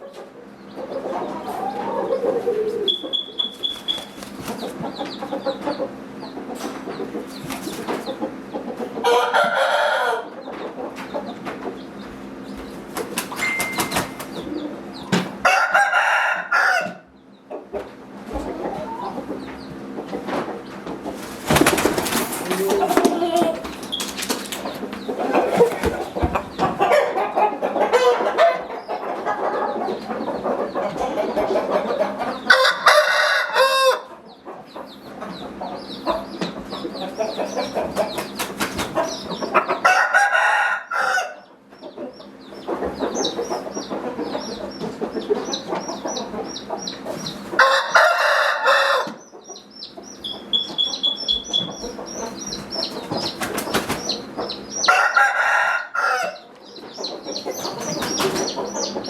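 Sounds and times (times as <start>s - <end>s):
chickens clucking: 0.0s - 59.0s
roosters crowing: 0.4s - 6.6s, 7.2s - 10.9s, 12.8s - 17.3s, 21.1s - 34.2s, 37.0s - 43.6s, 44.5s - 59.0s
fast high chirping: 2.9s - 4.8s, 13.0s - 14.5s, 49.7s - 54.9s.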